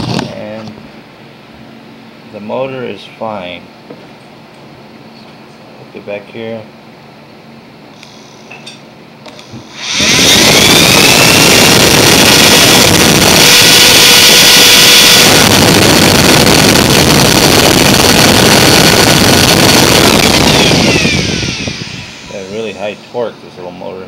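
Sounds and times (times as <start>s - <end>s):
small electric motor whirring: 9.4s - 23.1s.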